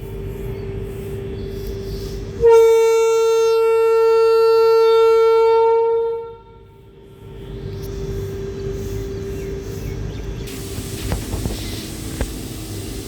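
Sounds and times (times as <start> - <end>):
locomotive hum: 0.0 - 13.0
locomotive horn blast: 2.3 - 6.8.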